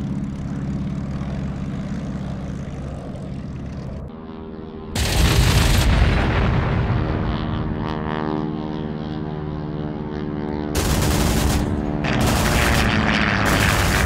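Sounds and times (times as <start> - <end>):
propeller plane engine droning: 0.0 - 14.0
machine-gun fire: 5.0 - 6.2, 10.8 - 14.0.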